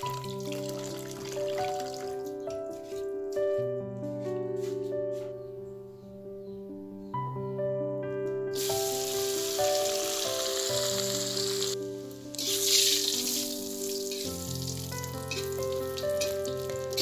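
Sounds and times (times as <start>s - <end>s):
background music: 0.0s - 17.0s
fish sizzling in a wok: 8.6s - 17.0s.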